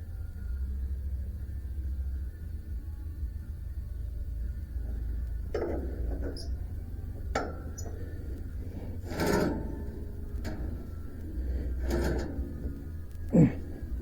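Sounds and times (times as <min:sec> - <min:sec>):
steady low hum: 0:00.0 - 0:14.0
parts knocking and clattering: 0:04.8 - 0:14.0.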